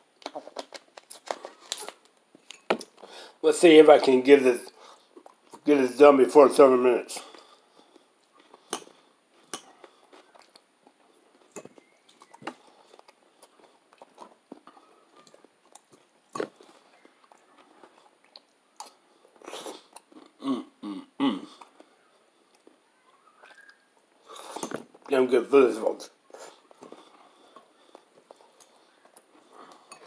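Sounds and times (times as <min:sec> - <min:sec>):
person chewing food: 0:04.7 - 0:05.6, 0:07.3 - 0:20.4, 0:21.5 - 0:22.8, 0:26.2 - 0:30.0.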